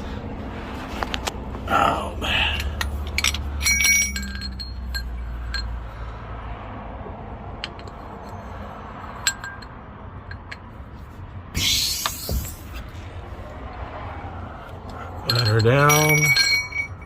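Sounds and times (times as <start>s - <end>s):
metal tools clinking: 2.4s - 5.8s, 7.6s - 10.8s, 14.9s - 17.0s.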